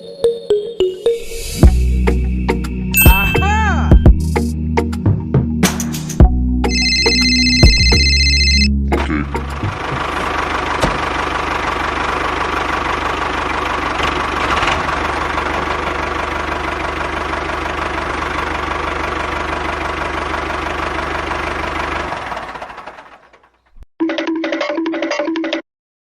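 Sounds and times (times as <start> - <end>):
engine idling with knocking pulse: 8.8 - 23.6.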